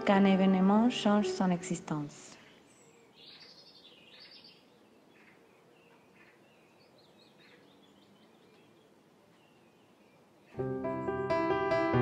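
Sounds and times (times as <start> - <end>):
piano music: 0.0 - 2.3, 10.6 - 12.0
low outdoor hiss: 0.0 - 12.0
faint birds chirping: 0.1 - 11.4.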